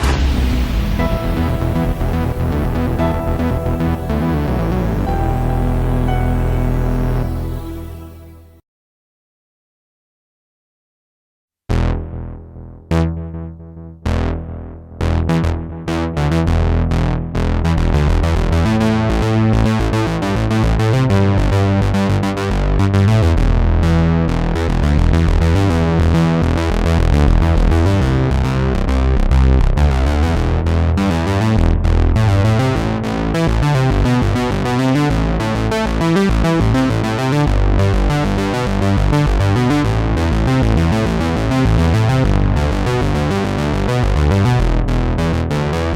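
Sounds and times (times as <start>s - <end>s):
synthesizer bass line: 0.0s - 8.6s, 22.5s - 45.9s.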